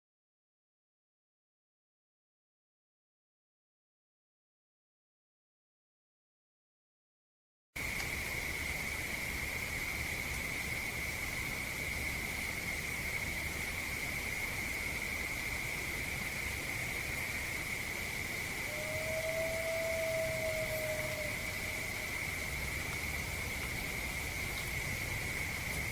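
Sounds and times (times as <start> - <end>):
faint outdoor hiss: 7.8 - 25.9
insects trilling: 7.8 - 25.9
low falling howl: 18.5 - 25.4.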